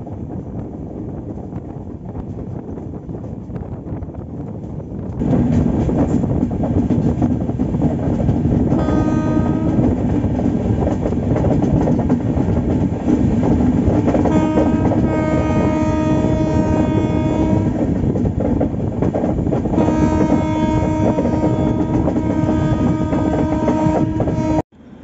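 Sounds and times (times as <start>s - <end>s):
train rumble with rail noise: 0.0s - 25.0s
train horn blasts: 8.7s - 10.0s, 14.2s - 17.9s, 19.8s - 24.7s.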